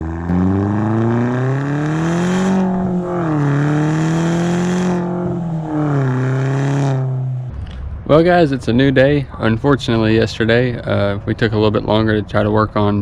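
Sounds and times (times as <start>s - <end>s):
car engine accelerating: 0.0s - 9.0s.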